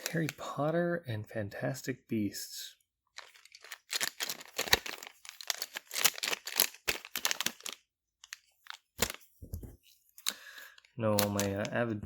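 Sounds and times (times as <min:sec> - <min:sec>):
plastic bag crinkling: 0:03.1 - 0:09.3, 0:10.4 - 0:11.8.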